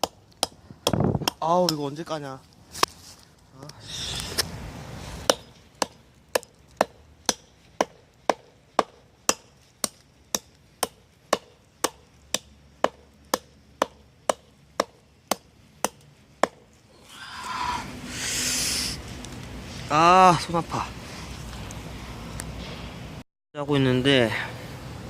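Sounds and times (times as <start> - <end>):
hatchet chopping wood: 0.0 - 2.0, 5.2 - 16.7.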